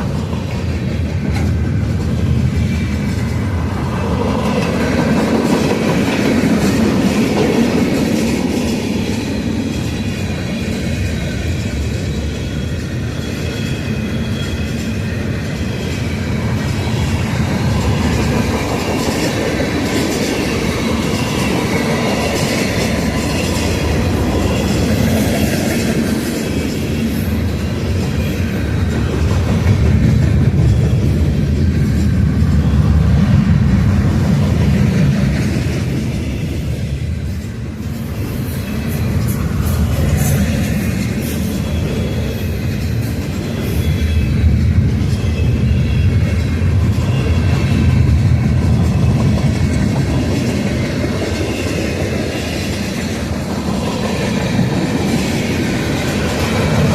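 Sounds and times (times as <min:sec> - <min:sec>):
freight train rumbling on rails: 0:00.0 - 0:56.9
high ringing from wheels: 0:08.5 - 0:28.8.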